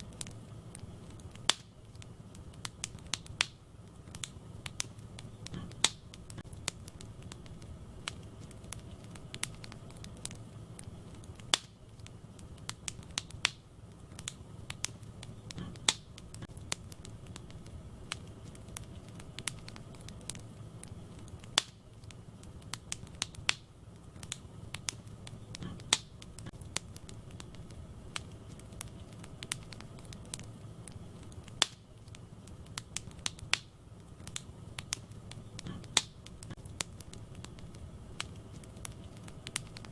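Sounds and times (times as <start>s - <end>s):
low noise of flames: 0.0s - 39.9s
wood fire crackling and popping: 0.0s - 39.9s.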